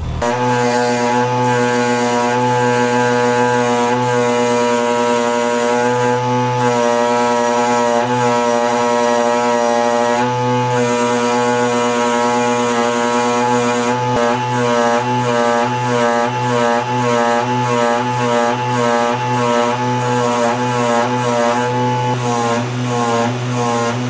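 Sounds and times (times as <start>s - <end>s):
low bass line: 0.0s - 4.2s.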